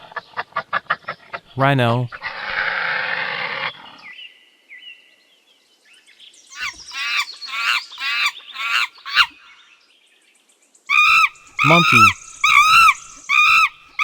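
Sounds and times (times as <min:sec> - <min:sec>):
rhinoceros squeaking calls: 0:06.6 - 0:09.3, 0:10.9 - 0:14.0.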